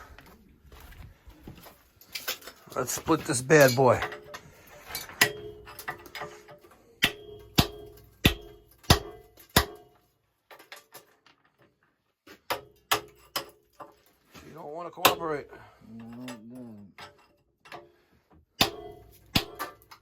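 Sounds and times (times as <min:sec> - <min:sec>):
hammer striking cast iron: 0:03.6 - 0:10.0, 0:12.5 - 0:13.6, 0:15.0 - 0:15.5, 0:18.6 - 0:20.0.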